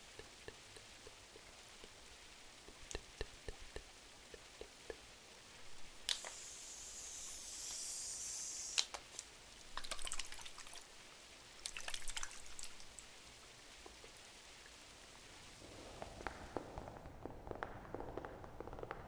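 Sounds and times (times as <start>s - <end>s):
rain pattering on window glass: 0.0s - 6.5s, 8.9s - 17.4s
wood fire crackling: 0.0s - 9.9s.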